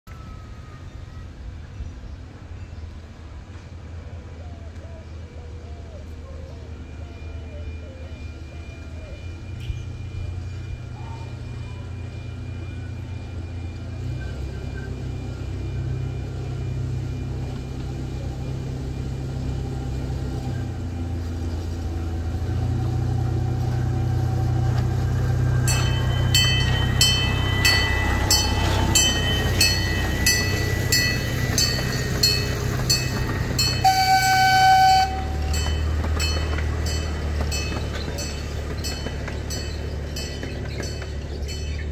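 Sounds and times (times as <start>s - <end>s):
miniature train engine running: 7.8s - 41.9s
wheels clicking over rail joints: 16.5s - 41.9s
train horn toot: 33.2s - 36.0s.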